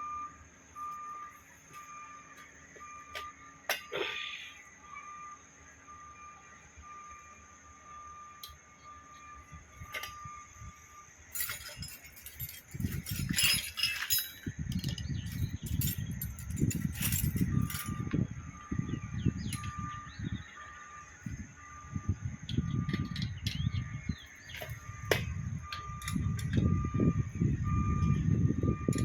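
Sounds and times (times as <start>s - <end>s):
metal parts clinking: 9.8s - 10.3s, 11.3s - 18.2s, 19.4s - 20.0s, 22.5s - 26.7s.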